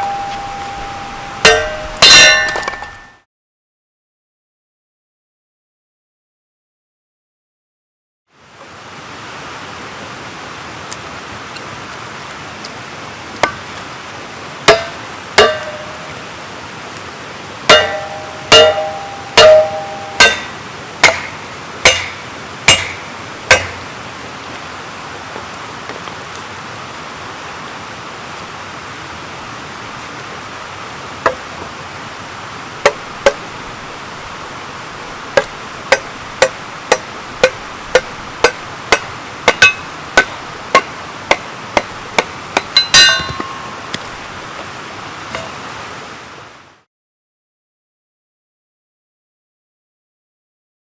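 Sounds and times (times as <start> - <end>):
steady background hiss: 0.0 - 3.1, 8.4 - 46.9
hammer striking splitting wedge: 0.0 - 3.2, 14.7 - 16.2, 17.7 - 23.8, 35.4 - 46.1.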